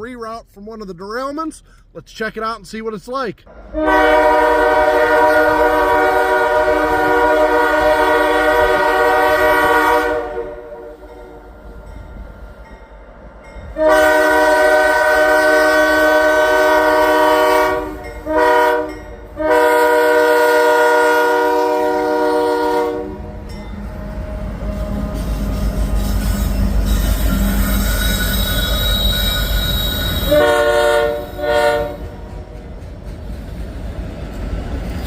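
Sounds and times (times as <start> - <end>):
freight train rumble: 0.0 - 35.0
locomotive air horn: 3.5 - 11.6, 13.7 - 32.2.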